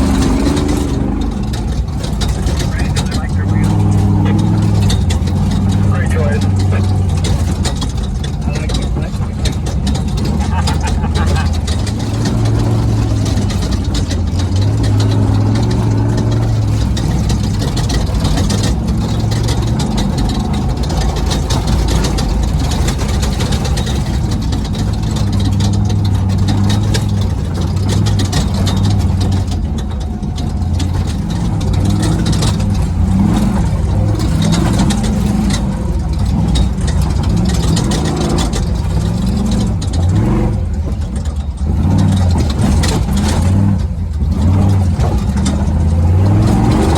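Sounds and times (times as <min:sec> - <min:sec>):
rattling and knocks: 0:00.0 - 0:46.9
truck engine revving: 0:00.0 - 0:46.9
wind and road noise: 0:00.0 - 0:46.9.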